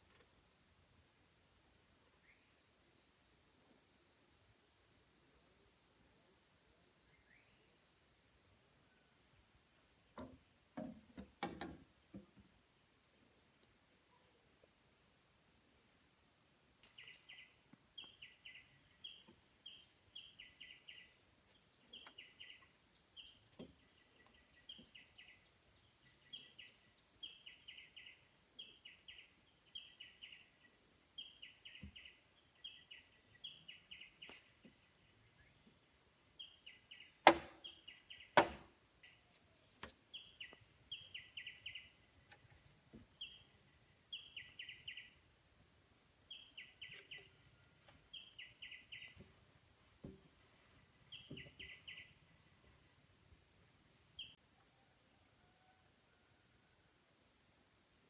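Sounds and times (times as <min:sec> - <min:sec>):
sharp knocks: 0:37.3 - 0:37.6, 0:38.4 - 0:38.7
small bird chirping: 0:40.1 - 0:42.4, 0:43.1 - 0:45.3, 0:46.3 - 0:49.4, 0:51.1 - 0:52.4.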